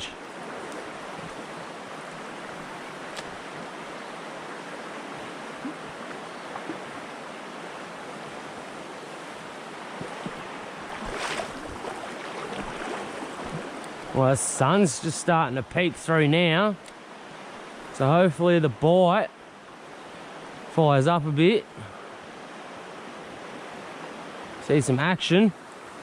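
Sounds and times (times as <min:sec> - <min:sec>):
rustle or splash: 0:00.0 - 0:08.6, 0:09.7 - 0:15.3
river water running: 0:00.0 - 0:26.0
faint click: 0:03.1 - 0:03.3.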